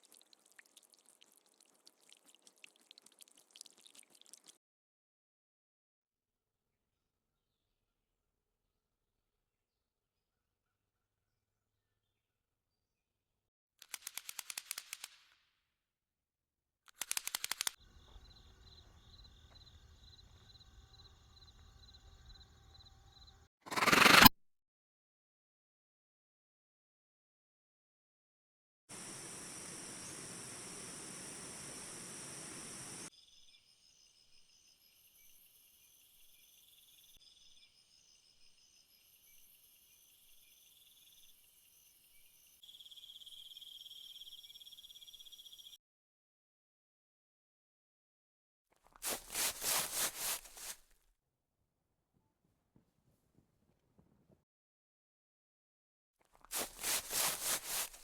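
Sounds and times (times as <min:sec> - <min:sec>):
rattles of sharp clicks: 0:16.9 - 0:17.8
insects chirping and trilling: 0:17.4 - 0:24.1, 0:28.9 - 0:45.8, 0:56.6 - 0:58.0
loud insect buzz: 0:22.8 - 0:24.3.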